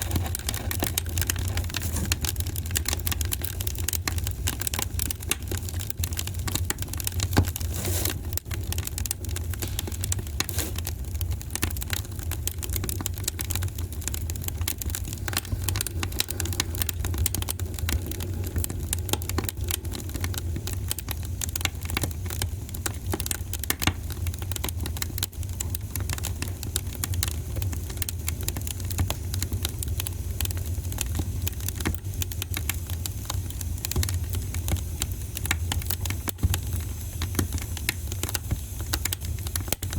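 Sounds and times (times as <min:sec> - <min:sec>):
fire low rumble: 0:00.0 - 0:39.9
wood fire crackling and popping: 0:00.0 - 0:39.9.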